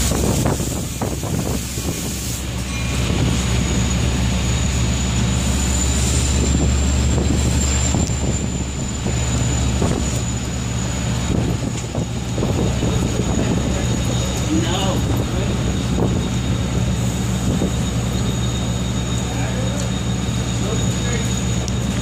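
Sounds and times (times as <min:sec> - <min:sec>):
heavy rain hiss: 0:00.0 - 0:04.4
high-pitched whine: 0:00.0 - 0:22.0
low engine hum: 0:00.0 - 0:22.0.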